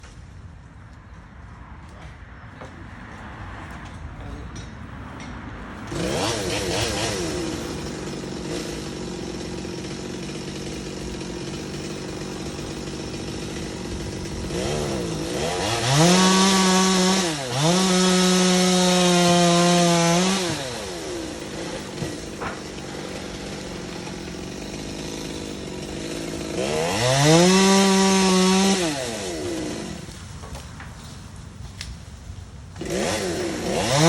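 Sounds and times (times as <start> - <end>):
chainsaw engine revving: 5.8 - 30.6, 32.8 - 34.0.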